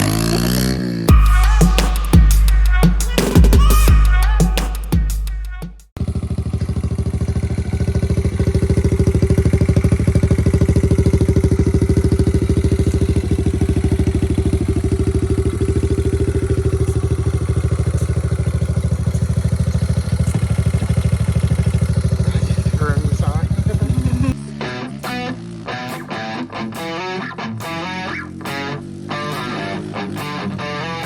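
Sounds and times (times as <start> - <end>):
dirt bike engine running: 0.0 - 2.3, 6.0 - 31.0
drum-backed music: 1.1 - 5.9.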